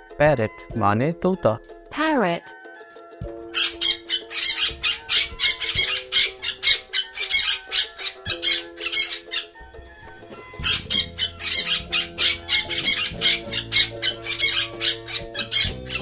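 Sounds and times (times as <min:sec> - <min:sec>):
background music: 0:00.0 - 0:16.0
parrot squawking: 0:03.5 - 0:09.6, 0:10.3 - 0:16.0.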